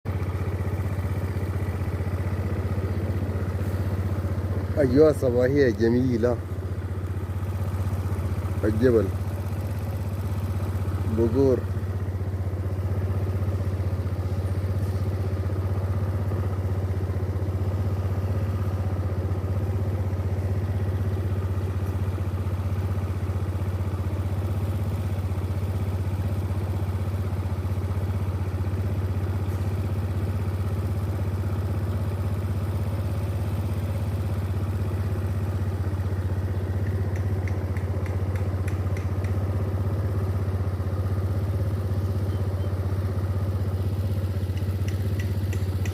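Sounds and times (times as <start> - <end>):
low engine drone: 0.1 - 22.2
faint clicks: 36.8 - 39.4, 44.5 - 45.9.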